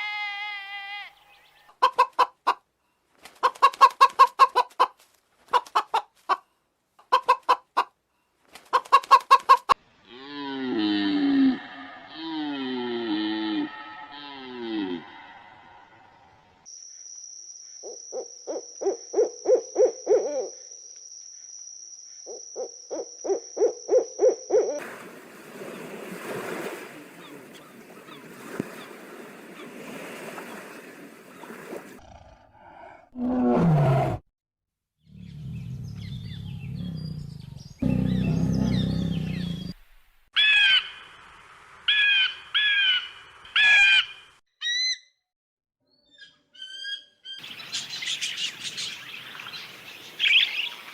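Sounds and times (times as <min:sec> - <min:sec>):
short bird calls: 0:46.3 - 0:50.9.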